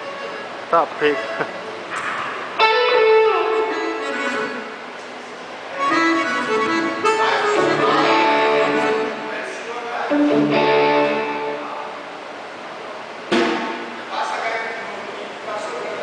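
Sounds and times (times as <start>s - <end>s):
accordion playing chords and melody: 0.0s - 0.6s, 2.8s - 4.8s, 5.7s - 9.5s
guitar: 0.0s - 12.6s, 13.2s - 14.1s.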